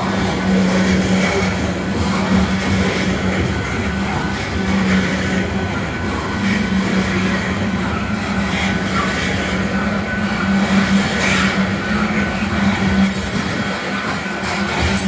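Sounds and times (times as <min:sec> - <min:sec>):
train wheels rumbling on rail: 0:00.0 - 0:15.0
high-pitched squeal: 0:12.8 - 0:15.0.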